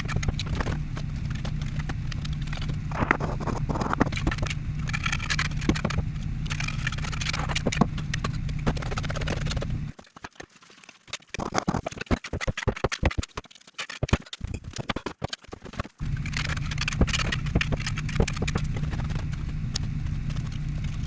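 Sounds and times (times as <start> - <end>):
machine humming: 0.0 - 10.0, 15.7 - 21.0
taps knocks and scrapes: 0.0 - 21.0.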